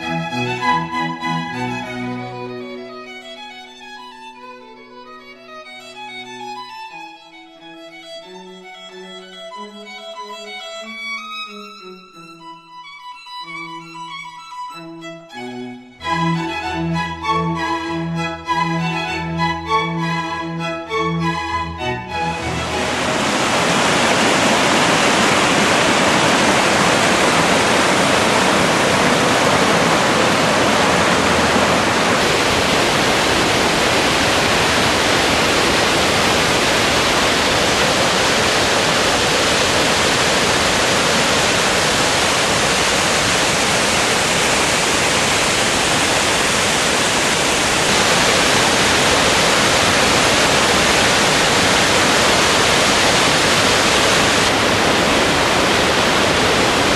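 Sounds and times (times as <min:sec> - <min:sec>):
waterfall rushing: 0:00.0 - 0:02.6, 0:21.0 - 0:56.9.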